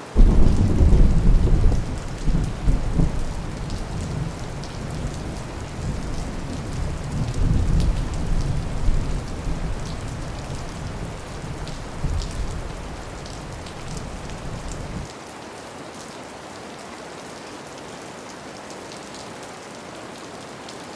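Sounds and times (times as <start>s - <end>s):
steady rainfall: 0.0s - 20.9s
rolling thunder: 0.2s - 15.1s.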